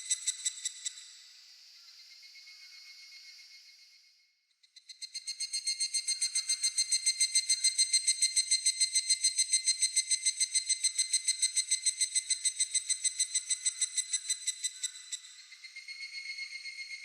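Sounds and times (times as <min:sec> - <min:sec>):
cicada whistle-like pulsing call: 0:04.9 - 0:17.0.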